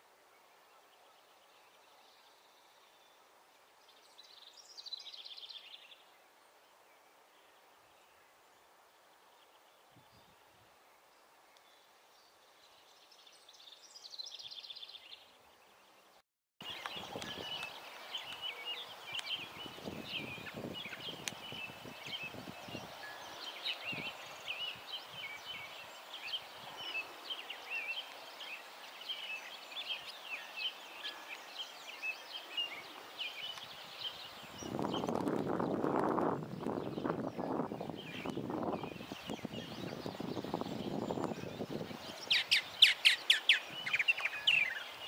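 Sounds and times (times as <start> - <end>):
songbird trill: 0.0 - 45.0.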